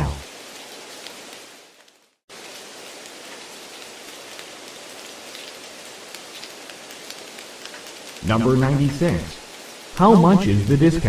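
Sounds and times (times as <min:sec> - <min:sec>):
steady rain: 0:00.0 - 0:11.0
raindrop ticks: 0:02.6 - 0:11.0.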